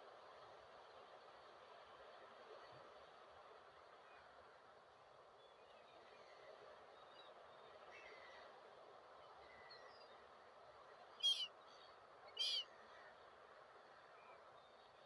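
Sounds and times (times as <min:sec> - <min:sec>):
faint background noise: 0:00.0 - 0:15.0
gull calls: 0:11.2 - 0:11.5, 0:12.4 - 0:12.6.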